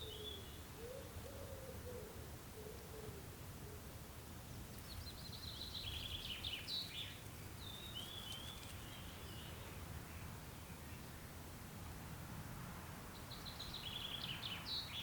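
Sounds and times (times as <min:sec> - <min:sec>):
songbird singing: 0:00.0 - 0:11.8, 0:12.4 - 0:15.0.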